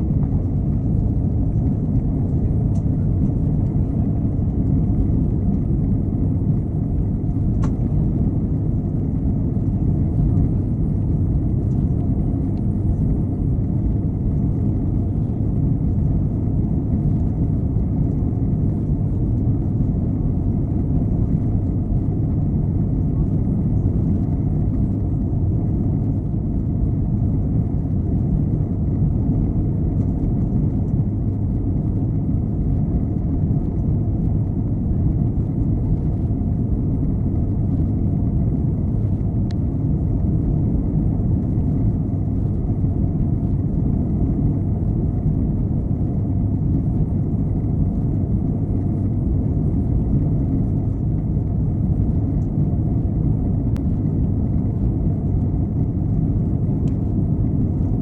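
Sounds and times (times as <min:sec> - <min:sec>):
airliner cabin engine drone: 0:00.0 - 0:58.0
faint tick: 0:56.8 - 0:57.1.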